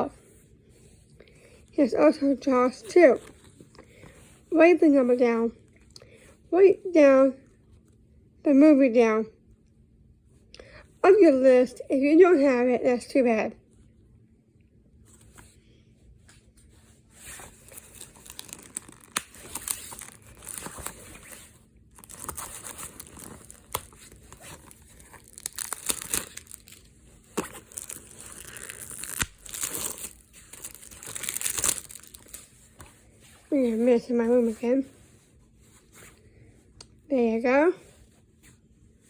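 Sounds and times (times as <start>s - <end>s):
plastic wrapping crinkling: 17.2s - 34.6s.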